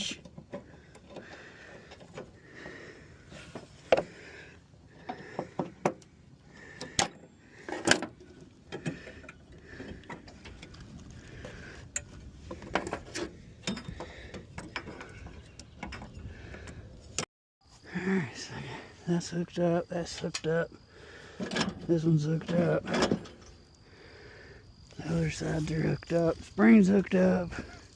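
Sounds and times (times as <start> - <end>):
metal tools clinking and knocking: 11.9 - 16.2.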